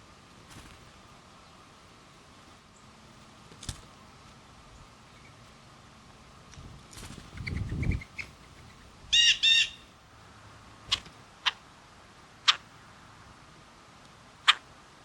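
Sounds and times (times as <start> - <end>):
rustle: 0.0 - 15.0
bird giving harsh calls: 9.1 - 9.9, 14.5 - 14.7.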